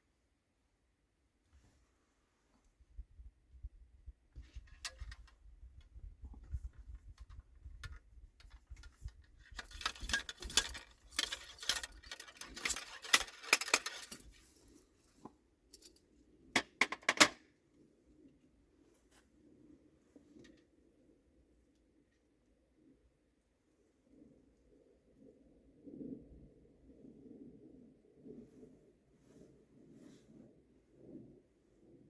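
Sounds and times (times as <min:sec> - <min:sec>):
small hard objects rattling: 0:09.5 - 0:14.4.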